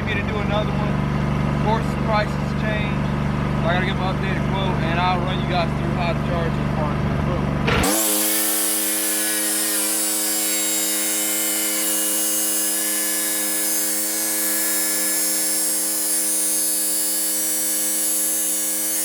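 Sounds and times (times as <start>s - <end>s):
chop saw motor whining: 0.0s - 19.0s.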